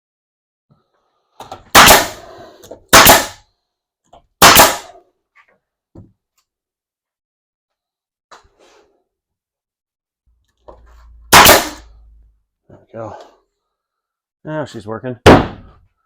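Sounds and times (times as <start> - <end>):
nail gun firing: 1.7 - 2.3, 2.9 - 3.4, 4.4 - 5.0, 11.3 - 11.8, 15.3 - 15.7.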